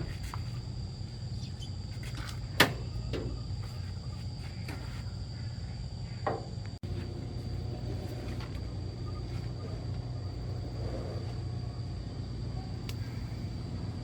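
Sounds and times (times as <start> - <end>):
high-pitched insect drone: 7.5 - 14.0.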